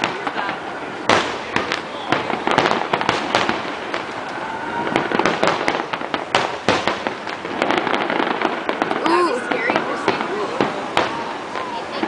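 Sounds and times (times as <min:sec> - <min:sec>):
fireworks bangs and crackling: 0:00.0 - 0:12.0
faint rising firework whistle: 0:04.0 - 0:05.6.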